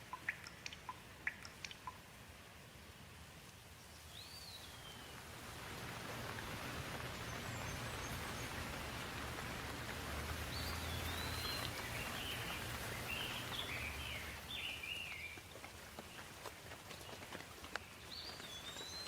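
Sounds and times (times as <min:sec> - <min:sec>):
rain falling: 0:00.0 - 0:19.0
bird chirping: 0:03.8 - 0:05.2, 0:10.4 - 0:16.3, 0:17.0 - 0:19.0.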